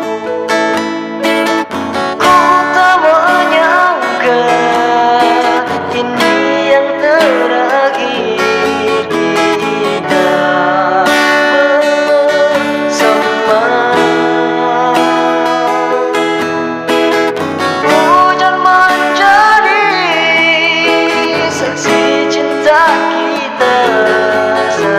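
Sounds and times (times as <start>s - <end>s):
plucked acoustic guitar melody: 0.0s - 24.9s
pop ballad on keyboard: 0.0s - 24.9s.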